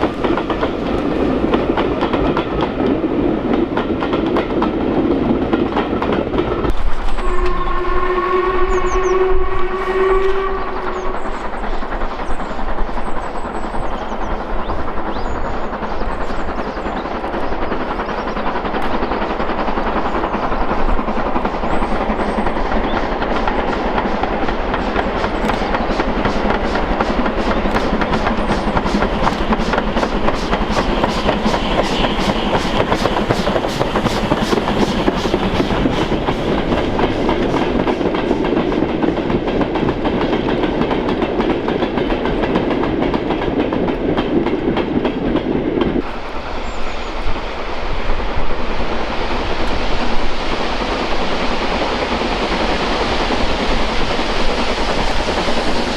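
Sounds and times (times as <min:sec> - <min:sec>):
train clattering on rails: 0:00.0 - 0:55.9
steam whistle: 0:07.1 - 0:11.4.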